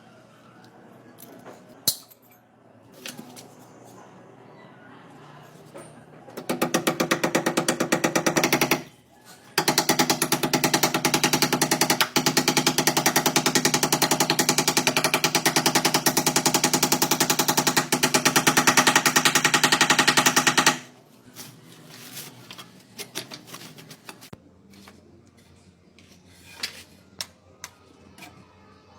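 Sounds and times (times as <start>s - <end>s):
power tool hammering: 6.4s - 8.9s, 9.6s - 20.9s.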